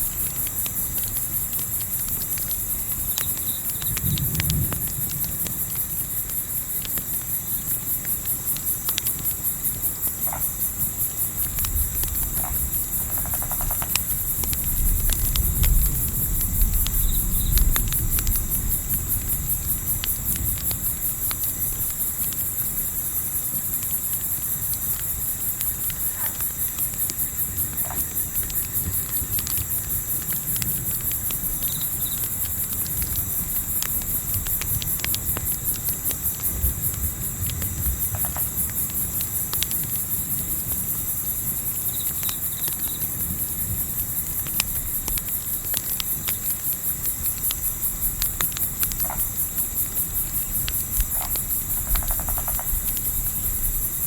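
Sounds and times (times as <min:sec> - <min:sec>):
wind rumble: 0:00.0 - 0:06.7, 0:10.7 - 0:22.5, 0:27.5 - 0:40.9, 0:43.1 - 0:54.0
campfire crackling: 0:00.0 - 0:54.0
crickets chirping: 0:00.0 - 0:54.0.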